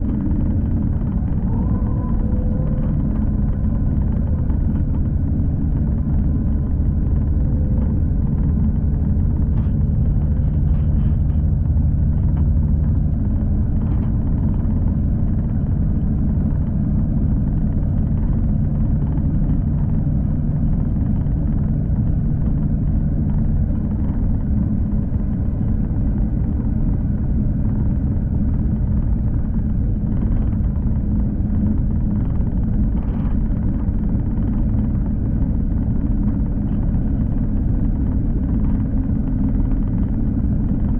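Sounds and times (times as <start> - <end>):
low hum: 0.0 - 40.9
train rumbling along track: 0.0 - 40.9.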